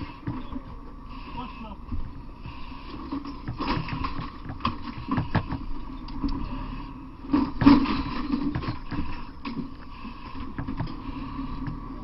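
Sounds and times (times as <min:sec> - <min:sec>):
steady engine drone: 0:00.0 - 0:12.0
knocks and clatter: 0:03.1 - 0:05.7, 0:07.3 - 0:09.8, 0:10.4 - 0:11.9.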